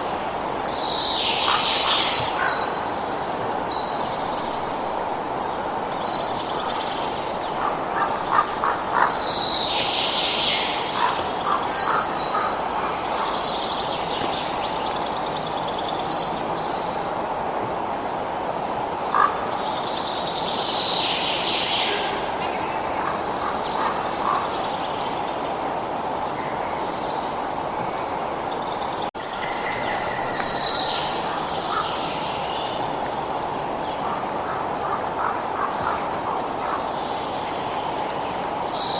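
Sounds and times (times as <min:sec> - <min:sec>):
birds chirping and calling: 0:00.9 - 0:02.8, 0:21.5 - 0:27.0, 0:28.4 - 0:33.2, 0:33.8 - 0:37.6.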